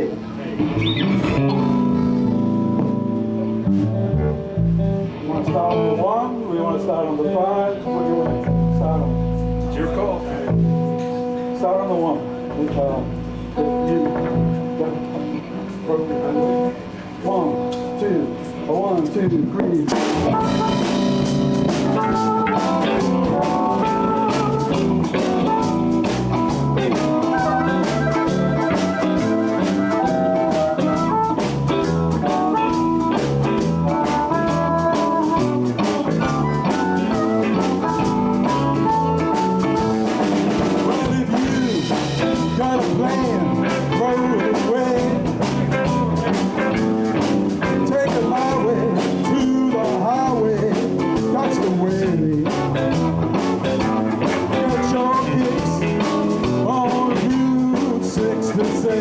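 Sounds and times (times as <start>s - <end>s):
blues band playing: 0.0s - 59.0s
person counting in: 22.0s - 32.8s.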